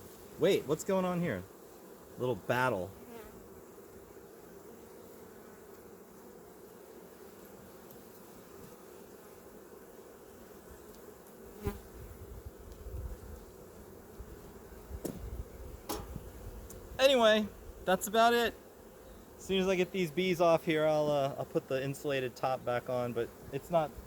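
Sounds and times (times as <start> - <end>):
honeybees buzzing: 0.0 - 24.0
sharp knocks: 15.9 - 16.2.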